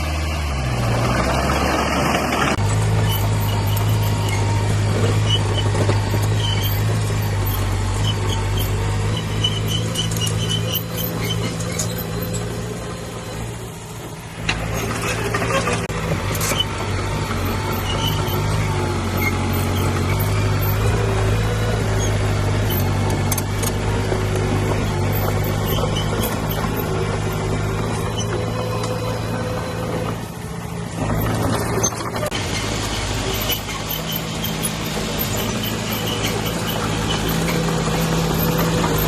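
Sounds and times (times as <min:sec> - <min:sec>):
diesel engine running: 0:00.0 - 0:39.0
metal clanks and scrapes: 0:01.9 - 0:12.7, 0:14.0 - 0:30.3
high squeaks: 0:02.6 - 0:13.4, 0:14.6 - 0:16.8, 0:17.4 - 0:30.3, 0:31.0 - 0:39.0.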